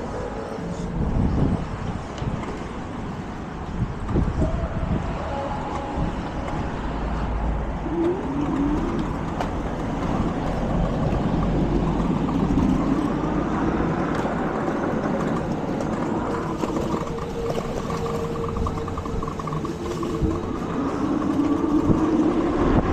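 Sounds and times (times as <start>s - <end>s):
car engines and road noise: 0.0s - 22.9s
engine pitch rising: 7.0s - 22.9s.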